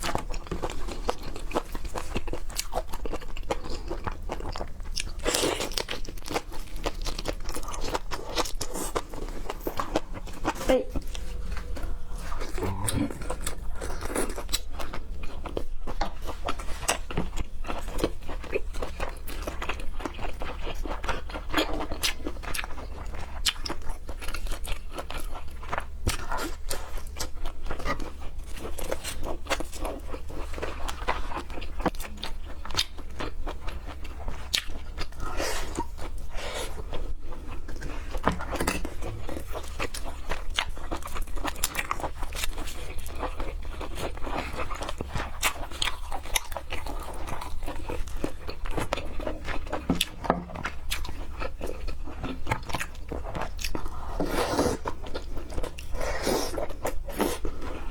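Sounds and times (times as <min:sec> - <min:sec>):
chewing and crunching seafood: 0:00.0 - 0:57.9.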